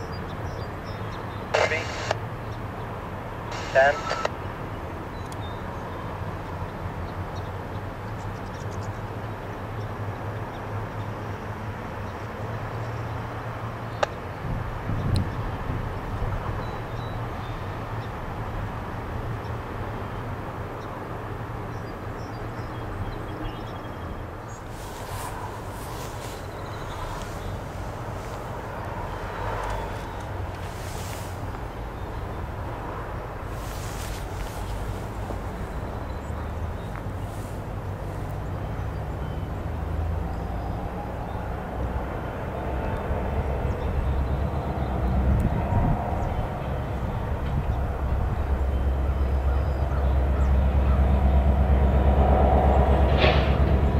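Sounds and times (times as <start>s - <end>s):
diesel locomotive rumbling: 14.5s - 53.9s
train rolling noise: 50.2s - 53.9s.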